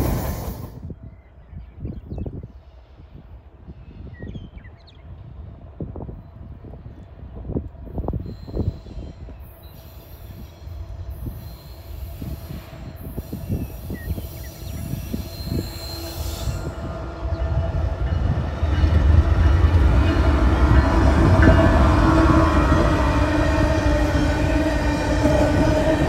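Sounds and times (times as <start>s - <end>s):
diesel locomotive engine passing: 0.0s - 0.8s, 7.1s - 26.0s
wheel squeal: 13.2s - 16.7s.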